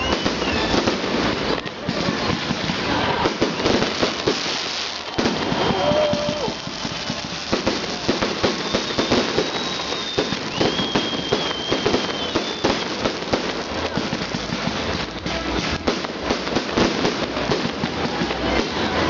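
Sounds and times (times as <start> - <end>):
high steady whistle: 0.0 - 0.9, 8.3 - 13.0
fireworks bangs and crackle: 0.0 - 19.0.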